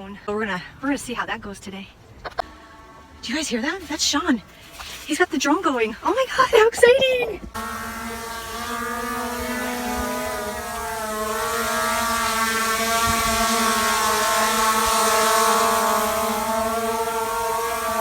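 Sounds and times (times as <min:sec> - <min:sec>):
drone propellers whining: 0:07.5 - 0:18.0.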